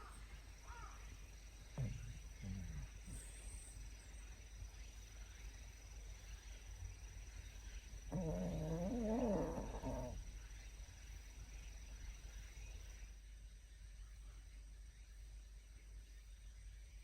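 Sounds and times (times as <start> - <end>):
faint steady low hum: 0.0 - 17.0
dog whining: 8.1 - 10.2.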